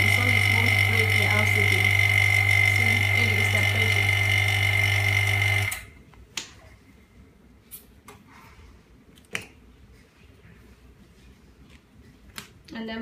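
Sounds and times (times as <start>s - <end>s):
vacuum pump humming: 0.0s - 6.0s.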